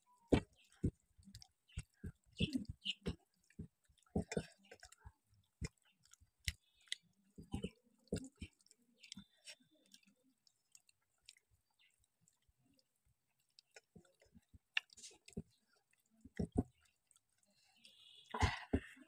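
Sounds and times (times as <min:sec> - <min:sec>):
quiet chewing mouth sounds: 0:00.0 - 0:19.0.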